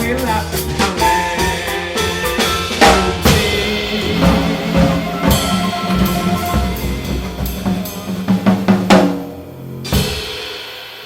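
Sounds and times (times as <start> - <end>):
jazz band playing: 0.0 - 10.2
drum kit hits and fills: 0.0 - 11.0
sustained bass notes: 2.1 - 9.9.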